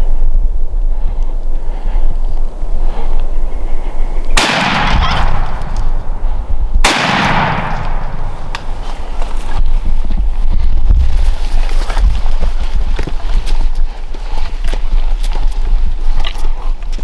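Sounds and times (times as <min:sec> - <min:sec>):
wind rumble on microphone: 0:00.0 - 0:17.0
shotgun blasts: 0:04.4 - 0:09.6.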